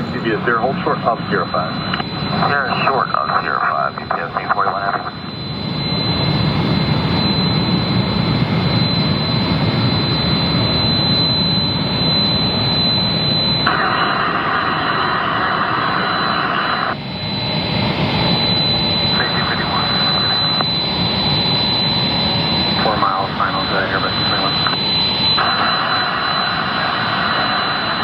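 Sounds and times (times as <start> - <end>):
radio hiss: 0.0 - 5.3, 13.6 - 17.0, 19.1 - 20.6, 22.8 - 24.8
jet engines running: 0.0 - 28.0.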